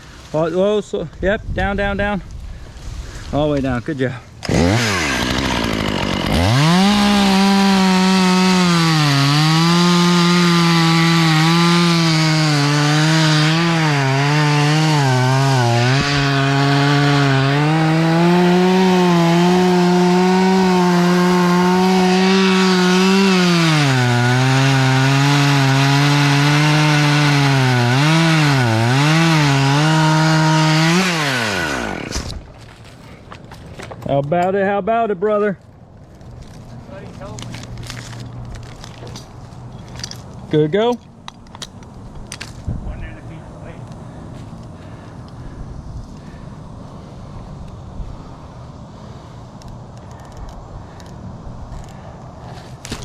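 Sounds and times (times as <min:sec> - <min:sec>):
chainsaw cutting wood: 0:04.4 - 0:32.5.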